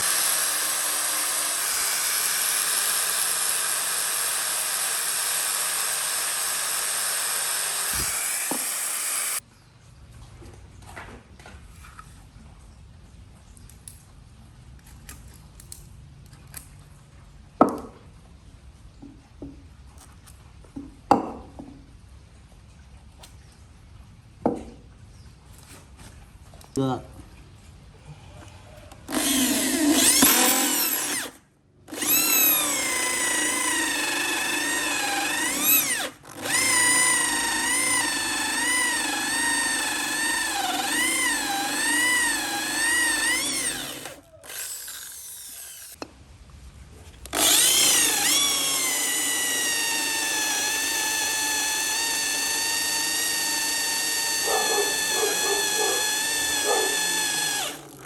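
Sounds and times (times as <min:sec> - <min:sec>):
power tool motor whining in wood: 0:00.0 - 0:09.4, 0:29.0 - 0:46.0, 0:47.2 - 0:58.0.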